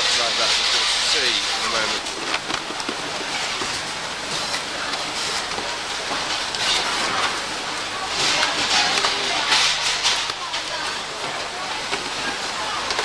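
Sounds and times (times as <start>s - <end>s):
machinery hiss and hum: 0.0s - 13.0s
clatter of parts: 8.2s - 12.2s.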